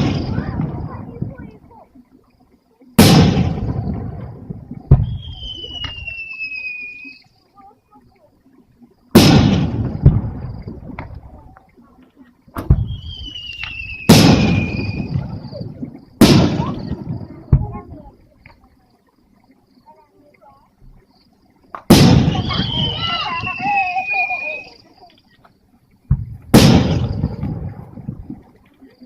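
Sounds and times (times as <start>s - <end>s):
fireworks booming: 0.0s - 1.6s, 3.0s - 6.8s, 9.1s - 11.4s, 12.5s - 18.1s, 21.7s - 24.8s, 26.0s - 28.5s
high descending whistle: 5.0s - 7.3s, 12.8s - 15.1s, 22.3s - 24.8s.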